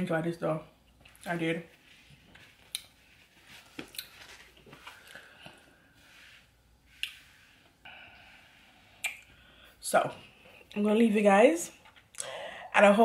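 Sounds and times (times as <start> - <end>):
person chewing softly: 2.3 - 3.0, 3.8 - 5.8
sharp mouth clicks: 9.0 - 9.3.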